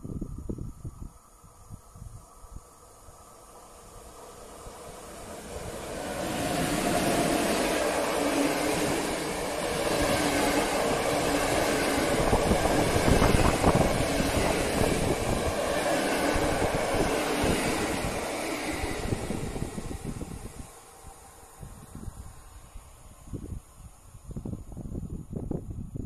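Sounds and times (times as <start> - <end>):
train wheels rumbling on rails: 3.8 - 22.3.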